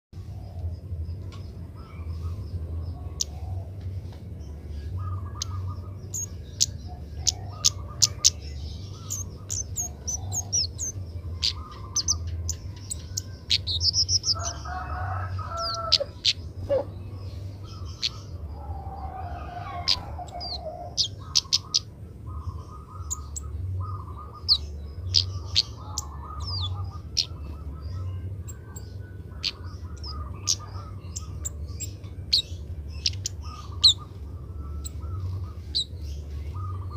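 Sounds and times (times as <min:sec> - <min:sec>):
birds chirping: 0:00.2 - 0:36.9
steady low hum: 0:00.2 - 0:36.9
bird warbling: 0:17.7 - 0:36.9.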